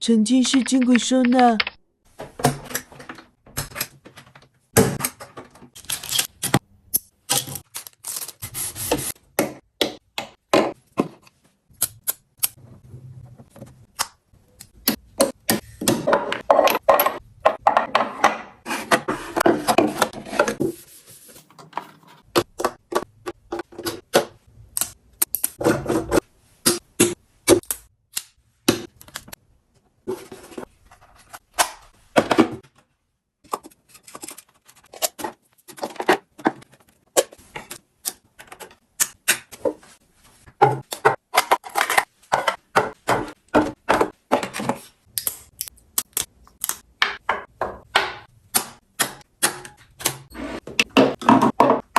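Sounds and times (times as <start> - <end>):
small items clicking and tapping: 0.3 - 1.8.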